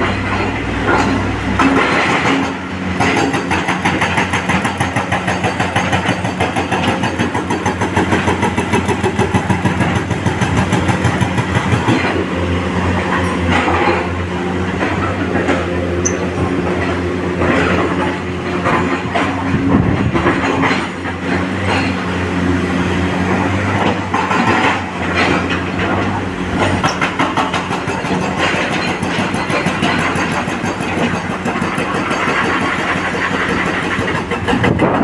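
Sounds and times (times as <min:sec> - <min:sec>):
excavator digging knocks: 0:00.0 - 0:35.0
excavator engine running: 0:00.0 - 0:35.0.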